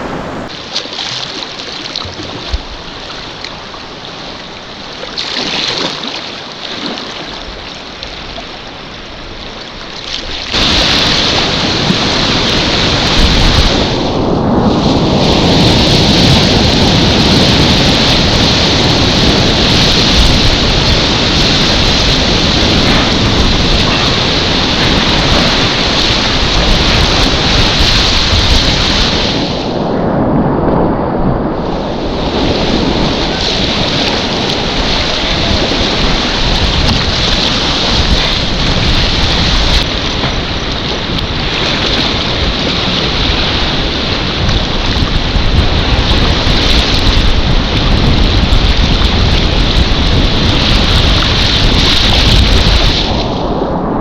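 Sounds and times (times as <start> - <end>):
wind buffeting microphone: 0.0 - 0.7, 1.6 - 6.0, 6.6 - 54.0
river whitewater rushing: 15.8 - 29.7, 31.8 - 53.2.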